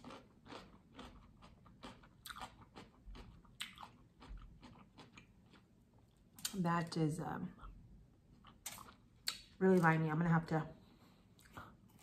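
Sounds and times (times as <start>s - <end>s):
person chewing crunchy food: 0.0s - 6.6s, 7.5s - 10.0s.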